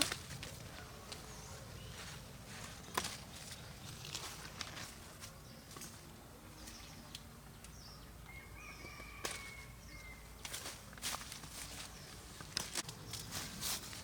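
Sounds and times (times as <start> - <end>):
birds chirping: 0.6 - 10.6.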